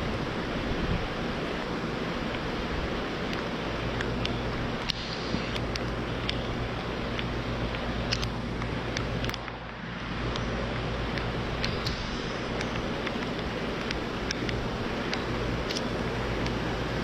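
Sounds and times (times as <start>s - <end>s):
wind buffeting microphone: 0.0s - 3.4s
sharp ticks: 3.3s - 16.6s
stormy wind rushing: 8.5s - 16.3s.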